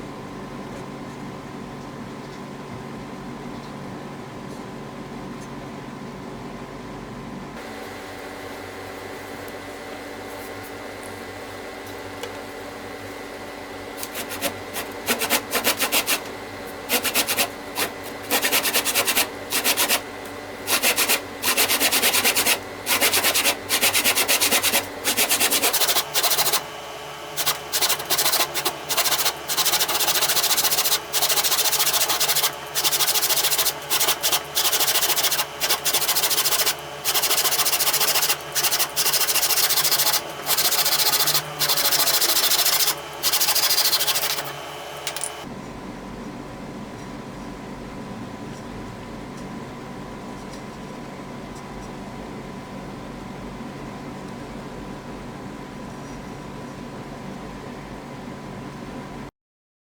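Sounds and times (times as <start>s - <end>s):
rasping tool on wood: 14.0s - 16.2s, 16.9s - 20.0s, 20.7s - 26.6s, 27.4s - 44.6s.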